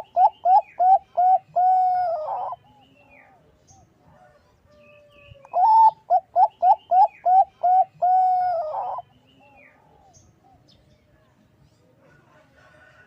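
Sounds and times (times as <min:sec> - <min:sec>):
dove cooing: 0:00.0 - 0:03.5, 0:05.5 - 0:10.7.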